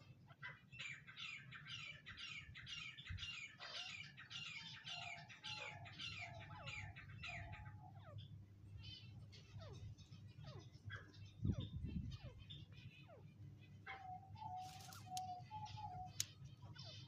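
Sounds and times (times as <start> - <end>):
francolin calling: 13.9 - 17.0.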